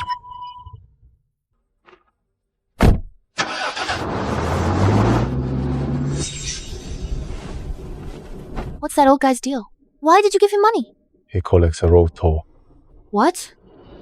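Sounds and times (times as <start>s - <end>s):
loud thump: 2.8s - 3.2s
truck engine starting and revving: 3.4s - 8.6s.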